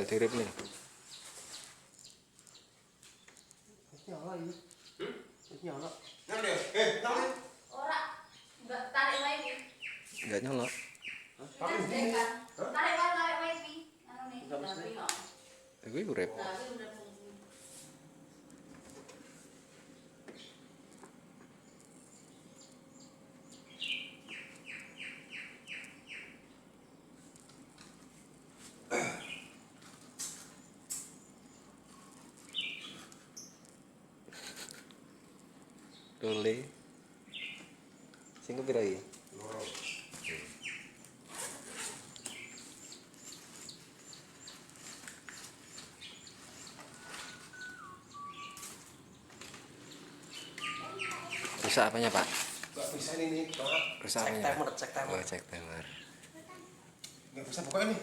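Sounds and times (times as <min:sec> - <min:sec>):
bird chirping: 0:00.0 - 0:16.8, 0:19.9 - 0:20.9, 0:21.5 - 0:27.2, 0:29.0 - 0:29.8, 0:30.4 - 0:33.8, 0:34.4 - 0:56.3
bird whistled note: 0:47.0 - 0:48.8.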